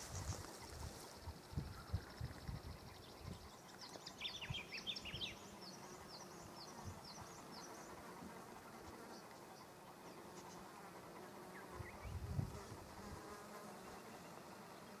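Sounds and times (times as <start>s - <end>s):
small birds chirping: 0.0s - 8.2s.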